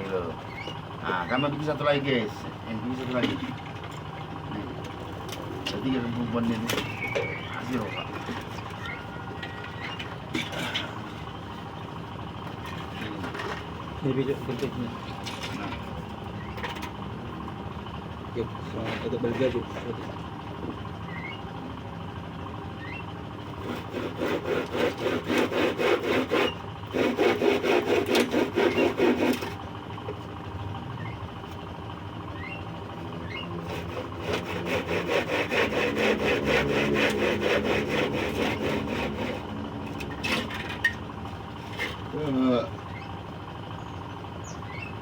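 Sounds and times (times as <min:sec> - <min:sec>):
hand saw cutting wood: 0:23.4 - 0:29.6, 0:33.6 - 0:40.9, 0:41.6 - 0:42.4.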